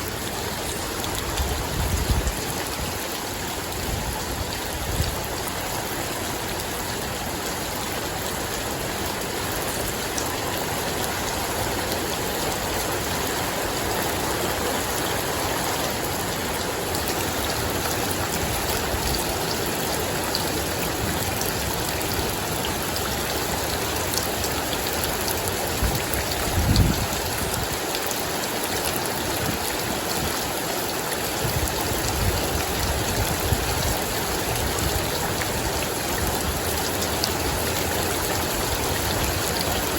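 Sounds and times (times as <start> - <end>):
rain falling: 0.0 - 39.9
wind gusting on microphone: 1.1 - 3.1, 25.7 - 27.8.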